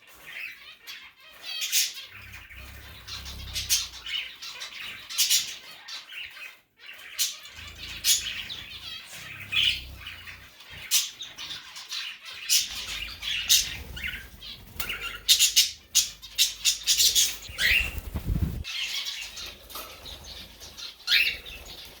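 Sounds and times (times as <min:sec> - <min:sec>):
high bird chirps: 0:00.3 - 0:22.0
bird flapping wings: 0:16.9 - 0:18.8.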